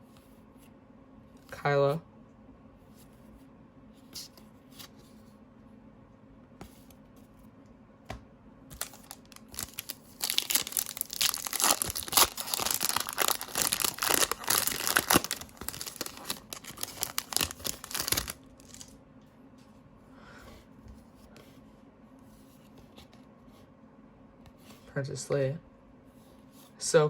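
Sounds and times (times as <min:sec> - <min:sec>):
foil wrapper tearing and crinkling: 0:08.7 - 0:18.9.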